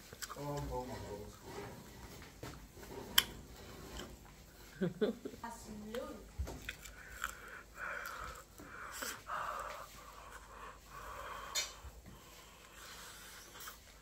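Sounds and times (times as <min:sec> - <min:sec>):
wet chewing: 0:00.0 - 0:01.4, 0:05.8 - 0:14.0
sharp mouth clicks: 0:11.4 - 0:11.8.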